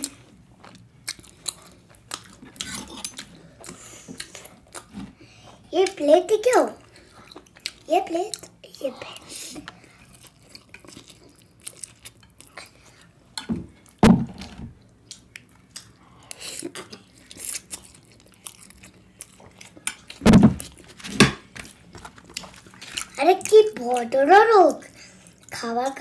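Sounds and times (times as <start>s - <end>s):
chewing with mouth smacks: 0.0s - 5.2s, 6.8s - 13.1s, 14.9s - 20.9s, 21.6s - 24.2s.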